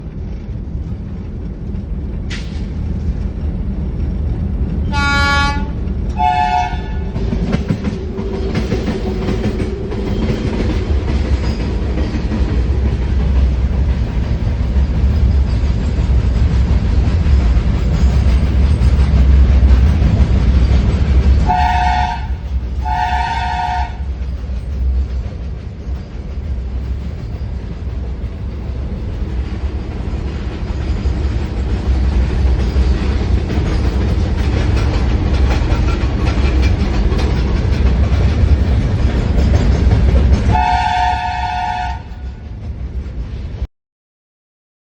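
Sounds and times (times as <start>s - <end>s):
train rumbling: 0.0s - 43.7s
locomotive horn blasts: 4.9s - 7.2s, 21.4s - 24.1s, 40.5s - 42.3s.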